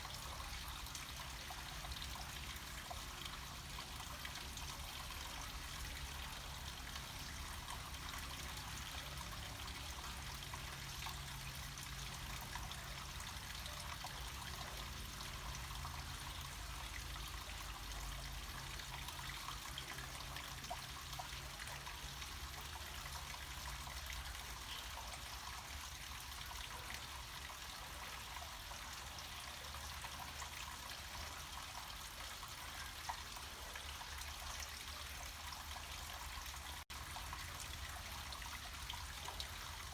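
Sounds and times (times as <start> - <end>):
stream trickling: 0.0 - 39.9.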